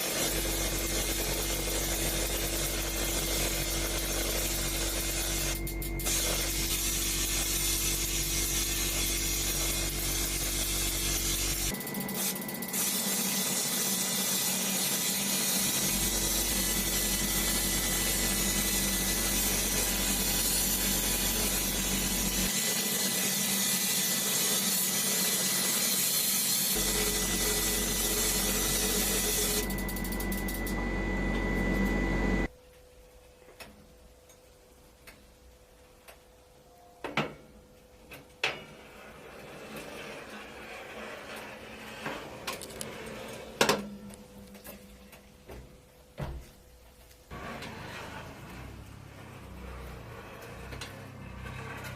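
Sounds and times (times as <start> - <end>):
small power tool humming: 0.0 - 32.5.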